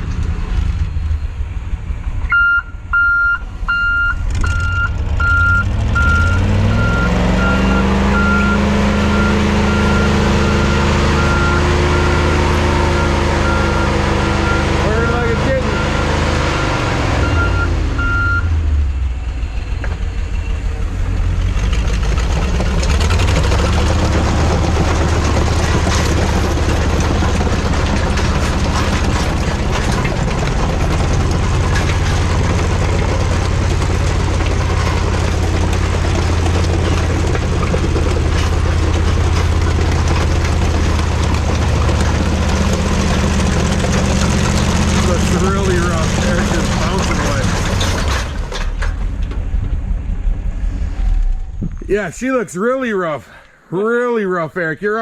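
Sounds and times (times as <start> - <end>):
tracked vehicle engine hum: 0.0 - 53.7
dense rattle: 19.2 - 53.2.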